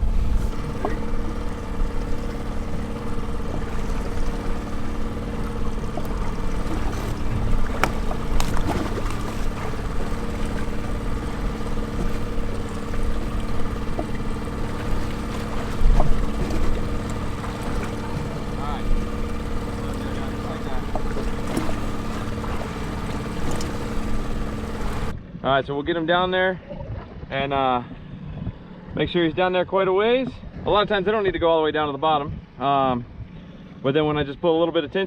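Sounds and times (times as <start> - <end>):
boat engine humming: 0.0 - 25.4
wind and water rumble: 0.0 - 35.0.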